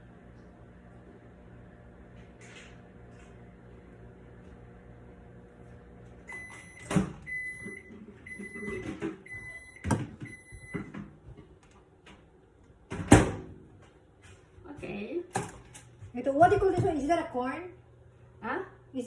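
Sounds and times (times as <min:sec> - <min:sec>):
microwave oven humming: 0:00.0 - 0:19.0
electronic beeps: 0:06.3 - 0:10.8.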